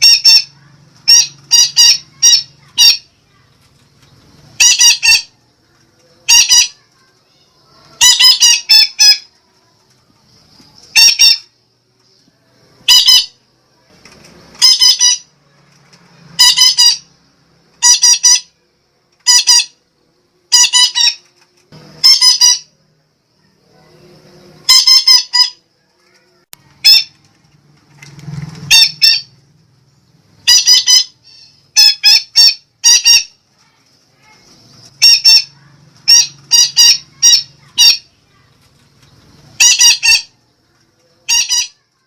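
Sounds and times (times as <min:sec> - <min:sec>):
parakeet harsh squawking calls: 0:00.0 - 0:03.1, 0:04.6 - 0:05.3, 0:06.3 - 0:06.8, 0:08.0 - 0:09.3, 0:10.9 - 0:11.5, 0:12.8 - 0:13.4, 0:14.6 - 0:15.3, 0:16.4 - 0:17.1, 0:17.8 - 0:18.5, 0:19.2 - 0:19.8, 0:20.5 - 0:21.2, 0:22.0 - 0:22.7, 0:24.6 - 0:25.6, 0:26.8 - 0:27.1, 0:28.7 - 0:29.3, 0:30.4 - 0:33.4, 0:34.9 - 0:38.1, 0:39.6 - 0:40.4, 0:41.2 - 0:41.8.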